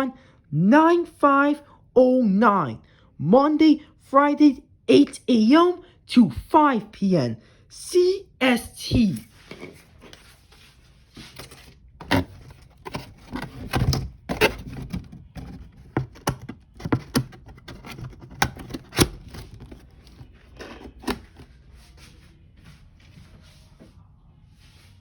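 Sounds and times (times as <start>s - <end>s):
clicks and knocks of packaging: 11.3s - 21.5s
packaging rustling: 11.3s - 21.6s.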